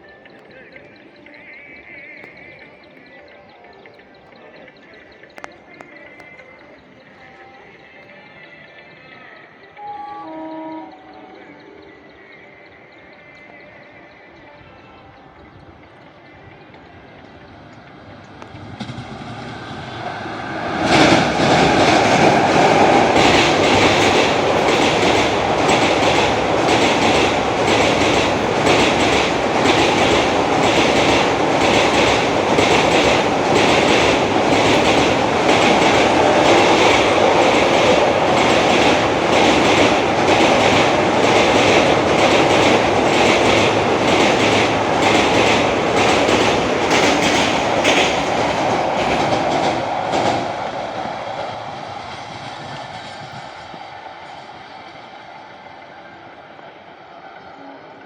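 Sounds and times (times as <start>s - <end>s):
passenger train passing: 0.0s - 58.0s
clickety-clack of wheels: 16.0s - 55.2s.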